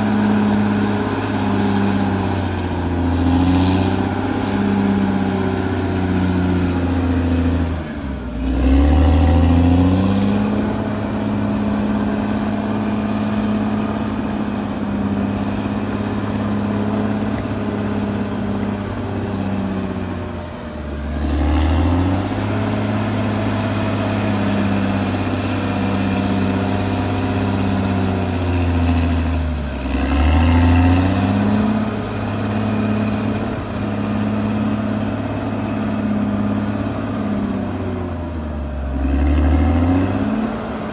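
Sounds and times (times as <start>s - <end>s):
bulldozer diesel engine running: 0.0s - 40.9s.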